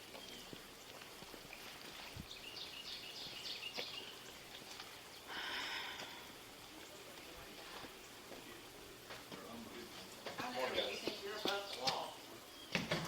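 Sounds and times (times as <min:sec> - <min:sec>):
bird chirping: 0:00.0 - 0:00.6, 0:02.2 - 0:05.3
faint background hiss: 0:00.0 - 0:13.0.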